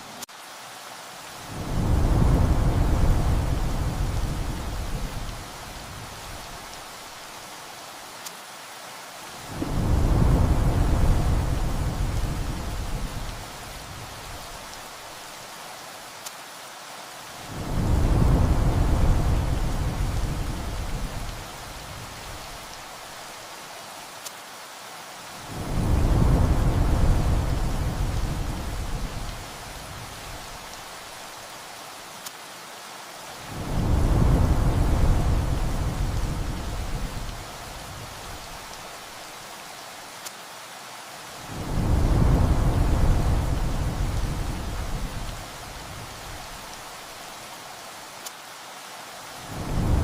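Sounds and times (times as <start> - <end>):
steady rain: 0.0 - 50.0
rolling thunder: 1.6 - 6.5, 9.6 - 14.4, 17.6 - 22.2, 25.6 - 30.5, 33.5 - 38.5, 41.5 - 46.5.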